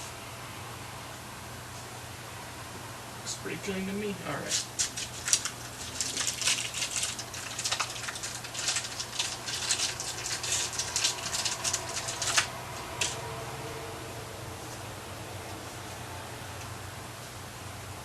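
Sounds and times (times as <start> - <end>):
fork parts clicking and rattling: 4.5 - 13.2.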